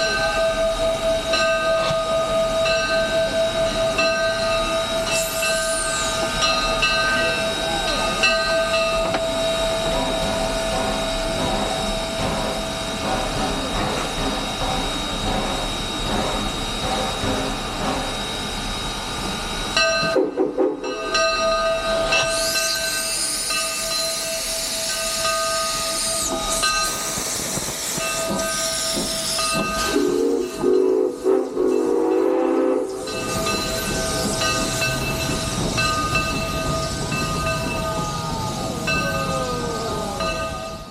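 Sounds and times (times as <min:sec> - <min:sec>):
steam hissing: 0:00.0 - 0:40.9
steam locomotive whistle: 0:19.9 - 0:21.2, 0:21.8 - 0:40.9.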